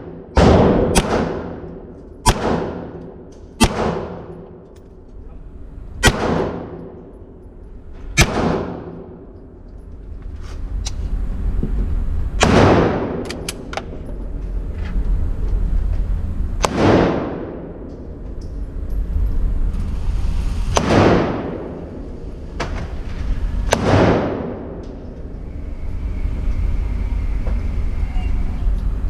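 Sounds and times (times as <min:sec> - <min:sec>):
gunshots echoing: 0:00.0 - 0:04.5, 0:06.0 - 0:07.0, 0:08.2 - 0:09.2, 0:12.4 - 0:13.2, 0:16.6 - 0:17.8, 0:20.8 - 0:21.8, 0:23.7 - 0:24.8
low rumble: 0:00.0 - 0:29.0
faint gunshots: 0:00.4 - 0:01.6.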